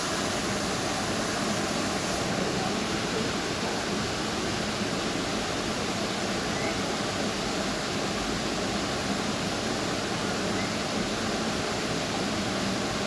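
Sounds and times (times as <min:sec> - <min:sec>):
waterfall rushing water: 0:00.0 - 0:13.0
faint bird chirps: 0:06.5 - 0:06.9, 0:10.5 - 0:10.8.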